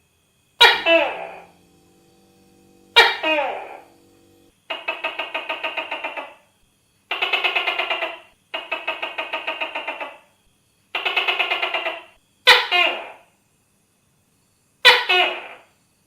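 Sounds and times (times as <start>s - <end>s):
gecko calling: 0.6s - 6.5s, 7.1s - 10.3s, 10.9s - 13.2s.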